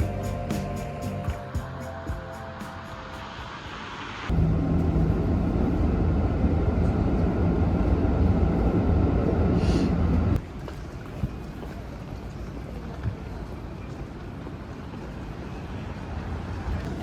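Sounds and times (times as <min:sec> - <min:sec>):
low mechanical rumble: 0:04.2 - 0:10.4.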